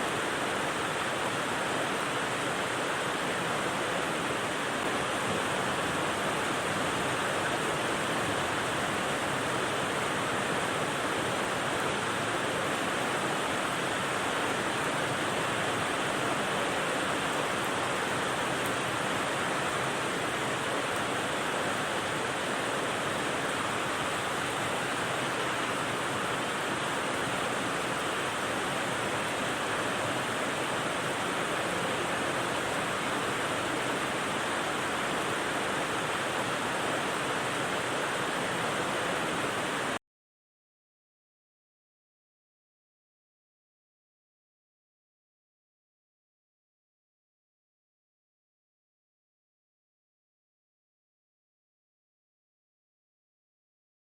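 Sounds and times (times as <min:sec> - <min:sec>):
steady rain hiss: 0:00.0 - 0:40.0.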